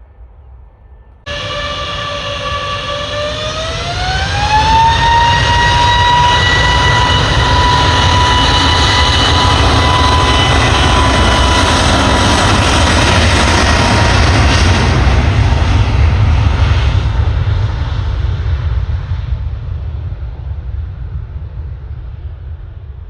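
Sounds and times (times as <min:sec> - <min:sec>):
jet engines spooling up: 0:01.3 - 0:18.2.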